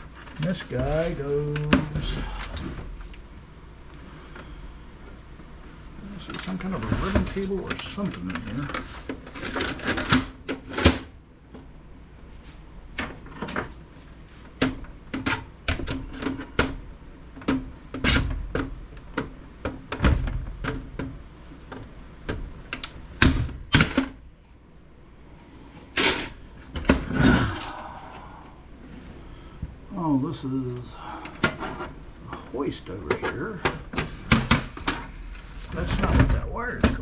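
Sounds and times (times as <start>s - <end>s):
computer case being taken apart: 6.2s - 11.2s.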